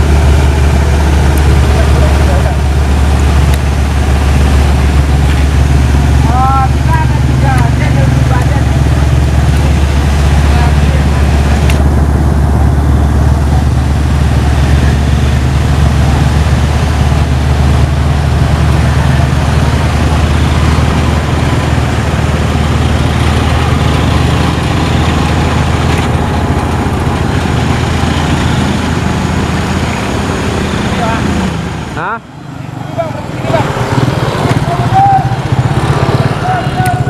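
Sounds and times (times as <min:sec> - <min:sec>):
traffic engines rumbling: 0:00.0 - 0:37.0.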